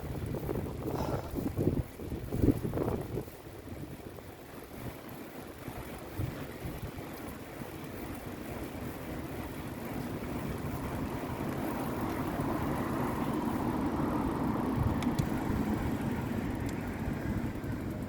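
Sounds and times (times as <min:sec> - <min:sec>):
bicycle road noise: 0:00.0 - 0:18.0
wind rumbling on microphone: 0:00.0 - 0:18.0
motor vehicle passing: 0:10.6 - 0:18.0.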